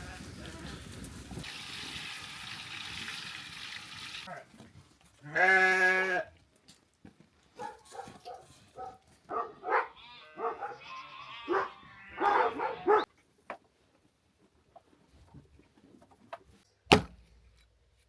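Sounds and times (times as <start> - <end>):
sheep bleating: 5.2 - 6.3, 9.4 - 13.1.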